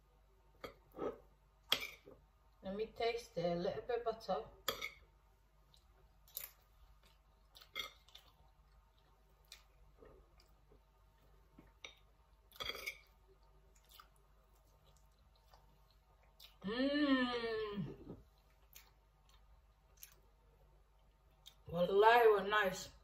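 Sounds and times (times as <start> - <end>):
person chewing: 5.6 - 16.6, 18.0 - 21.7.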